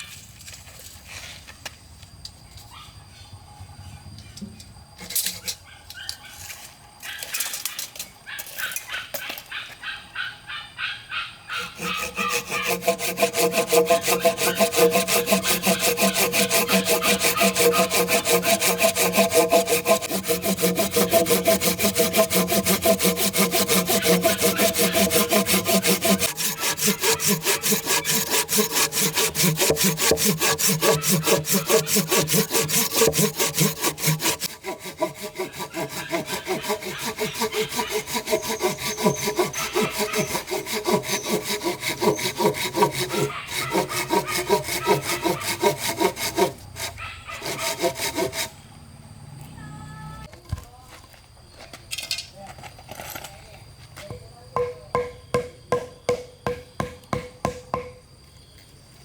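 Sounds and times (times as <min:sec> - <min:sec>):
saw cutting through wood: 0:11.6 - 0:48.5.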